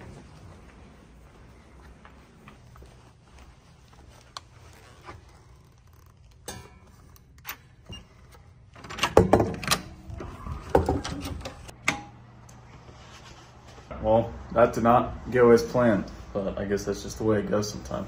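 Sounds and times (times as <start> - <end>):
rustling: 0.0 - 7.1.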